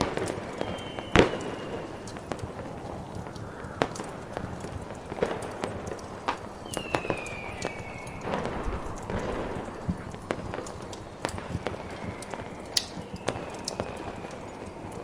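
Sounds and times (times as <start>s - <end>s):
crackling fire: 0.0s - 15.0s
storm wind hiss: 0.0s - 15.0s
fireworks pops: 12.8s - 13.5s
sharp cracks: 12.8s - 13.5s.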